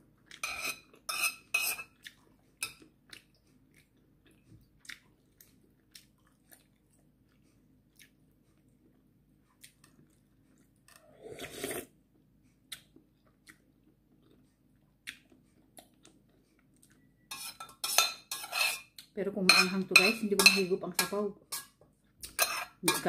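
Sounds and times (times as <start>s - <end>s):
person chewing: 0.1s - 17.8s
noodle slurp: 11.0s - 11.9s
metal utensil clinking on pot: 19.5s - 21.7s.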